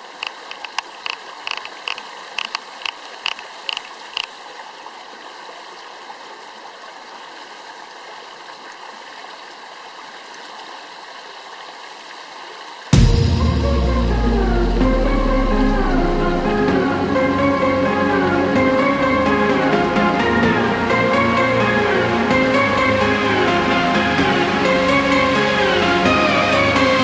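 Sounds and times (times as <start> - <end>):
stream rushing: 0.0 - 27.0
loud music: 12.9 - 27.0.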